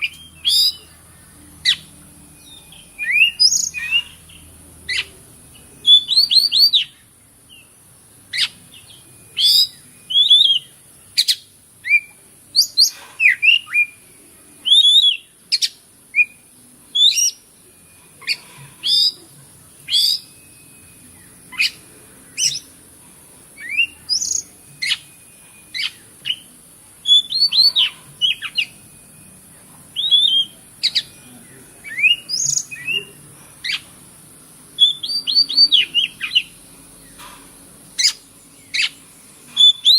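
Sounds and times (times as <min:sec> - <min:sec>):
bird singing whistled phrases: 0:00.0 - 0:00.9, 0:01.6 - 0:04.3, 0:05.8 - 0:07.6, 0:08.3 - 0:14.0, 0:14.6 - 0:17.4, 0:18.2 - 0:19.2, 0:19.9 - 0:22.7, 0:23.6 - 0:28.8, 0:29.9 - 0:31.2, 0:31.8 - 0:33.8, 0:34.8 - 0:37.2, 0:38.0 - 0:39.0, 0:39.6 - 0:39.9.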